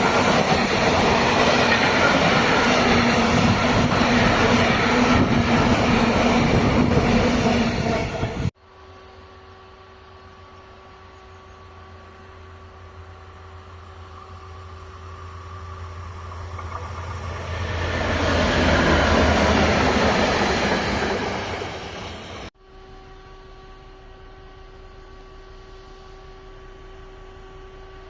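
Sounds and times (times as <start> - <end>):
train passing: 0.0 - 10.0, 11.8 - 28.0
steady low hum: 22.6 - 28.0.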